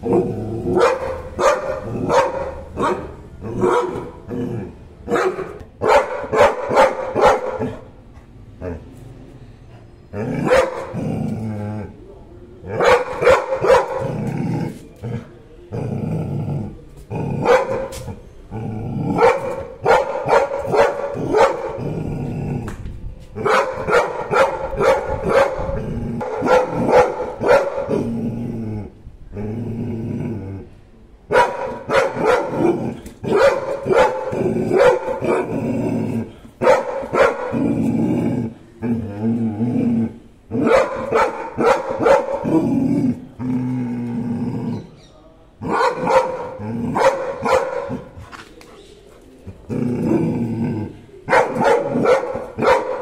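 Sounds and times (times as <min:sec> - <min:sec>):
dog growling: 0:00.0 - 0:04.9, 0:10.1 - 0:19.8, 0:21.1 - 0:22.8, 0:24.6 - 0:30.8, 0:31.7 - 0:45.0, 0:45.6 - 0:48.4, 0:49.1 - 0:53.0
dog barking: 0:00.7 - 0:04.2, 0:05.1 - 0:07.9, 0:10.4 - 0:11.0, 0:12.8 - 0:14.3, 0:17.4 - 0:18.1, 0:19.2 - 0:21.8, 0:23.4 - 0:28.0, 0:31.3 - 0:35.6, 0:36.6 - 0:37.6, 0:40.6 - 0:42.6, 0:45.7 - 0:48.2, 0:51.3 - 0:53.0.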